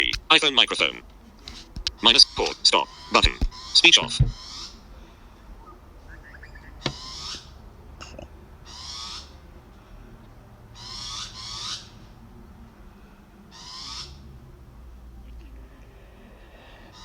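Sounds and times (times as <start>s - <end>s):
bird harsh calls: 0.0s - 10.0s, 10.7s - 12.2s, 13.5s - 14.3s, 16.5s - 17.0s.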